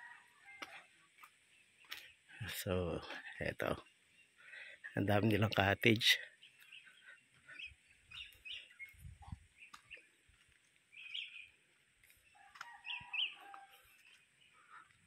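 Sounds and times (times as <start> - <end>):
high bird chirps: 10.9 - 11.6.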